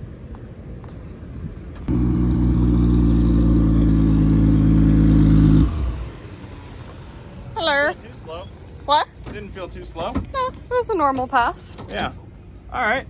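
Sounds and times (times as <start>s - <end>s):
car engine running: 1.9s - 7.9s.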